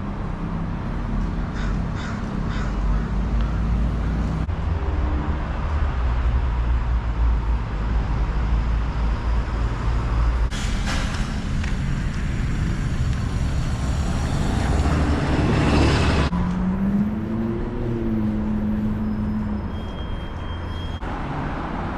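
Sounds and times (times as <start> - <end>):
engine rumble: 0.0 - 21.9
vehicles passing: 0.0 - 21.9
vehicle pulling away: 8.5 - 21.0.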